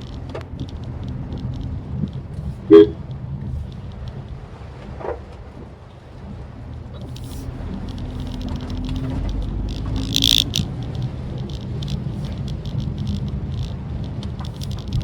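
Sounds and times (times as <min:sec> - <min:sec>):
car road and engine rumble: 0:00.0 - 0:15.0
raindrop ticks: 0:00.0 - 0:15.0.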